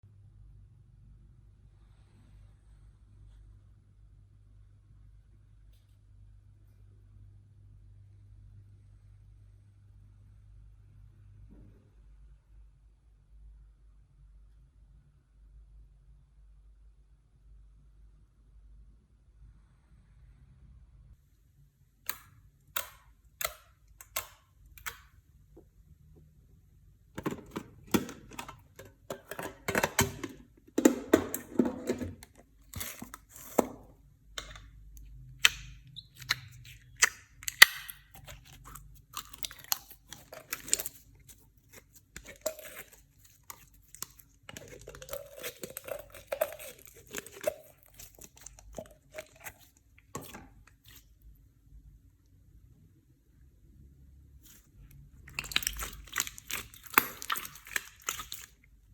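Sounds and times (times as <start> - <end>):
slime squished by hand crackling: 55.3 - 58.6.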